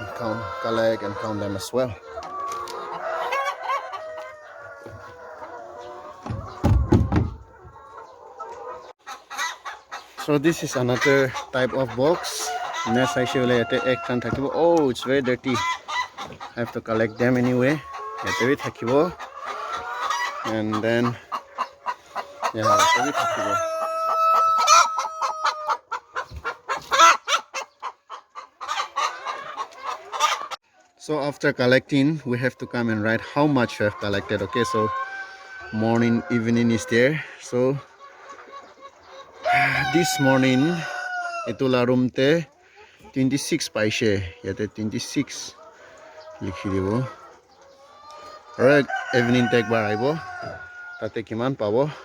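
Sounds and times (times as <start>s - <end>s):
chickens clucking: 0.0s - 52.0s
chicken long drawn-out call: 21.1s - 26.0s, 39.3s - 41.6s, 45.6s - 51.0s
rooster crowing: 39.4s - 41.5s, 48.8s - 50.7s.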